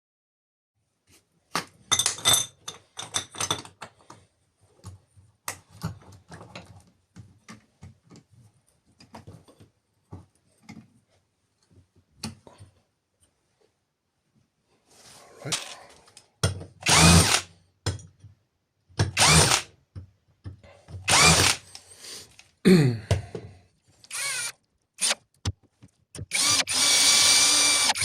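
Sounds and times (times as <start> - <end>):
small metal tool parts clattering: 1.9 - 4.2.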